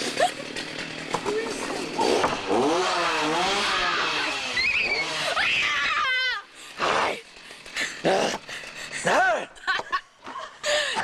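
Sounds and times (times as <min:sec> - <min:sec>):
chainsaw engine revving: 0:00.0 - 0:09.5
high-pitched screaming: 0:03.6 - 0:06.5.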